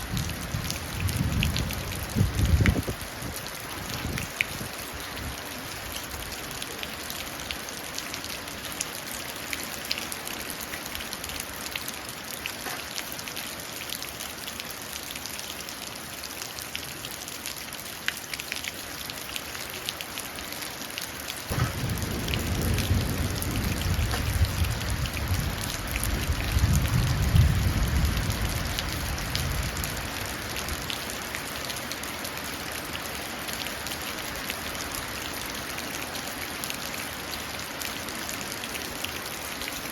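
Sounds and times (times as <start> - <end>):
rain falling into puddle: 0.0 - 39.9
thunder rumble: 21.5 - 30.0.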